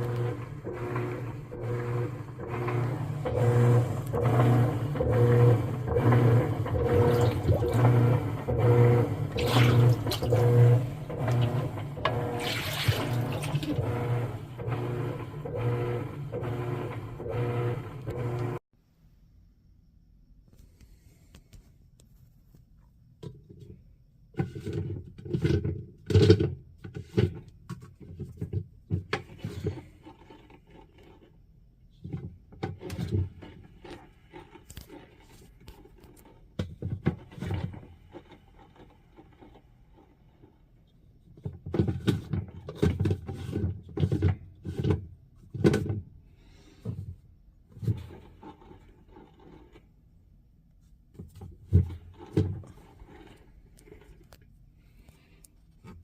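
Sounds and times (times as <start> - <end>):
washing machine clunking and rattling: 0.0 - 15.9.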